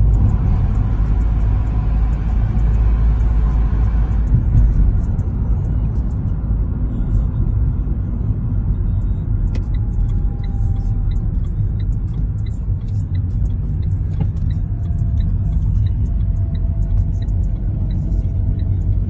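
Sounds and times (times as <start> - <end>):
vehicle engine and tyres rumbling: 0.0 - 19.0
light regular ticking: 8.9 - 19.0.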